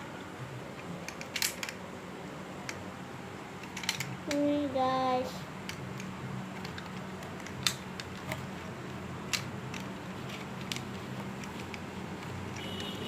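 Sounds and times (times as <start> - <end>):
plastic clicks and snaps: 5.6 - 12.8.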